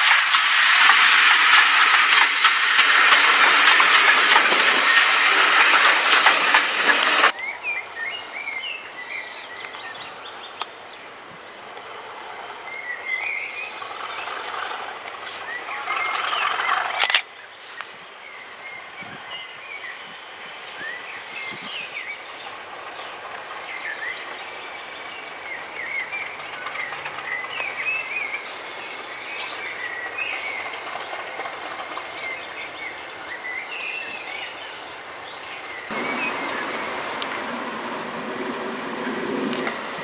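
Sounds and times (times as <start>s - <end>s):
loud noise: 0.0s - 7.3s, 35.9s - 40.0s
outdoor background noise: 0.0s - 40.0s
birds chirping and singing: 23.7s - 40.0s.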